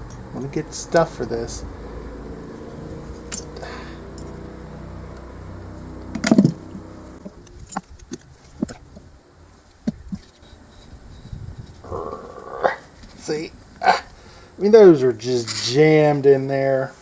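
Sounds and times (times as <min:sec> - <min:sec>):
loud metal clunk: 0:06.1 - 0:06.7.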